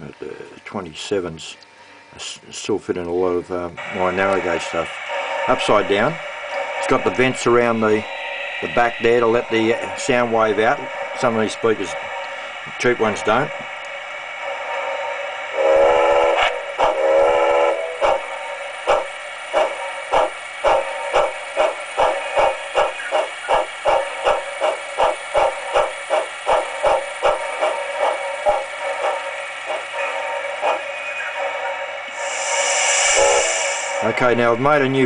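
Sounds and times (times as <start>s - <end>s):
steady steam hiss: 0.0s - 35.0s
steam locomotive chuffing: 3.8s - 35.0s
steam whistle blasts: 14.8s - 18.0s, 31.2s - 34.2s.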